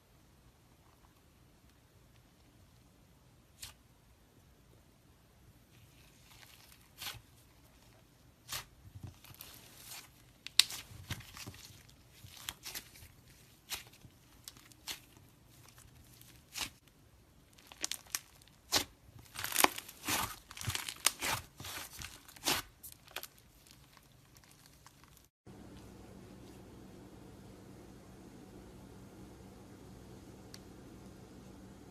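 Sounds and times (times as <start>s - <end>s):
slime squeezed crackling: 6.1s - 25.3s.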